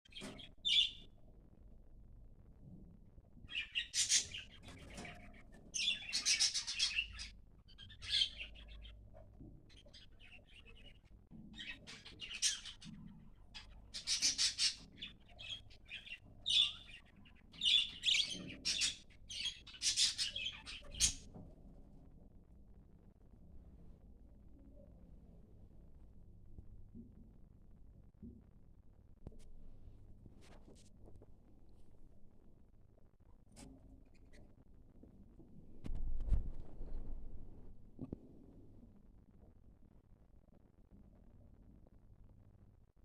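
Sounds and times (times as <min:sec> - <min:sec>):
budgerigars chirping and squawking: 0:03.5 - 0:05.1, 0:05.8 - 0:08.9, 0:13.6 - 0:17.0, 0:17.6 - 0:21.2.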